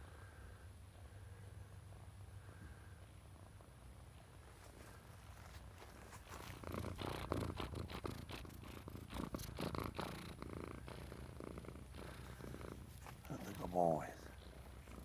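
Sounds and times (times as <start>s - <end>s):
rustling and scuffing: 4.5s - 6.7s, 12.8s - 13.7s
cat purring: 6.0s - 15.0s.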